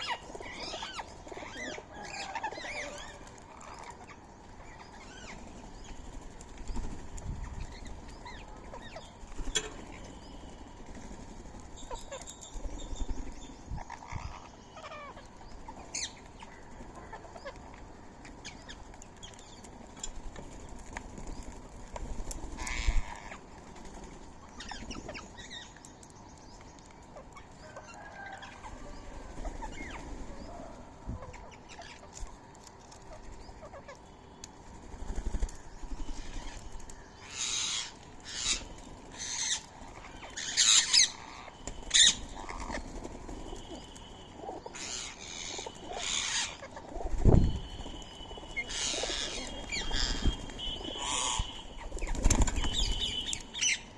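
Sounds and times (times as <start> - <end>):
birds calling: 0.0 - 53.9
loud short high bird calls: 35.9 - 53.9.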